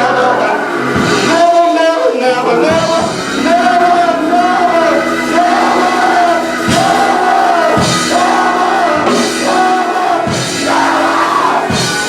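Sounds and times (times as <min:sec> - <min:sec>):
gospel band playing slow beat: 0:00.0 - 0:12.0
drum kit hits: 0:00.8 - 0:01.7, 0:02.6 - 0:12.0
long held sung notes: 0:02.4 - 0:12.0.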